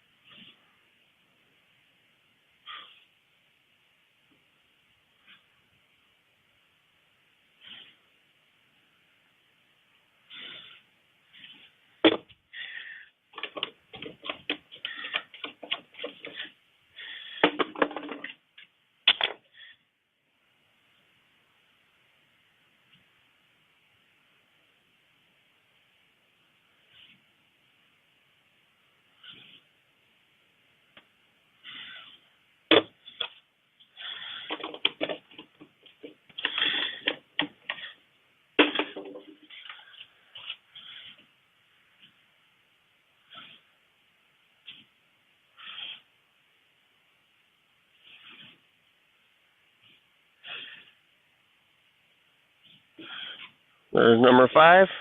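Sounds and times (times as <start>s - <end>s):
plastic oil bottles rattling: 13.3s - 16.5s, 17.3s - 18.4s, 34.0s - 38.0s, 38.6s - 41.0s.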